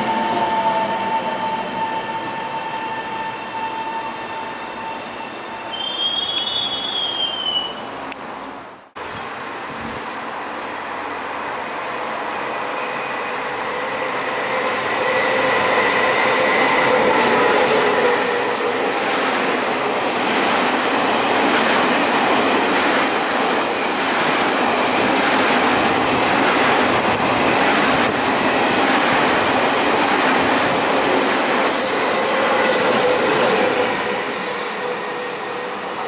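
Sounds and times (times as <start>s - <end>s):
train wheels rushing on rail: 9.0s - 36.0s.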